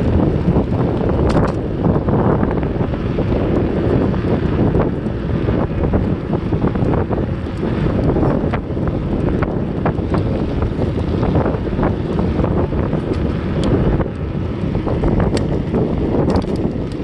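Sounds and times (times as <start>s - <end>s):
wind buffeting microphone: 0.0s - 17.0s
light clicks and rattles: 15.2s - 17.0s.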